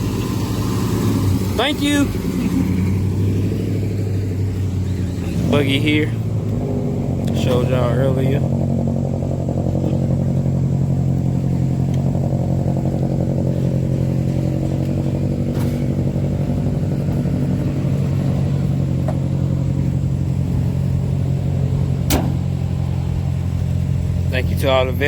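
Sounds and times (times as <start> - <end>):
vehicle engine idling: 0.0 - 25.0
sharp click: 22.1 - 22.5.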